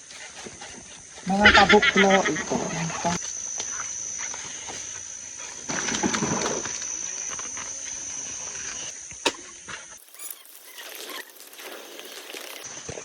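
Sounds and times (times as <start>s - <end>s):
insects droning: 0.0s - 13.0s
rustling and crackling: 10.0s - 12.9s.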